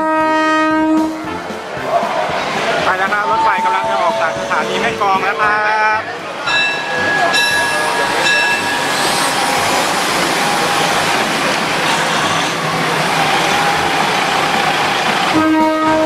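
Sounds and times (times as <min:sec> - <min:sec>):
train horn: 0:00.0 - 0:01.6, 0:03.3 - 0:05.8, 0:15.3 - 0:16.0
diesel train engine and wheels rumbling: 0:00.0 - 0:16.0.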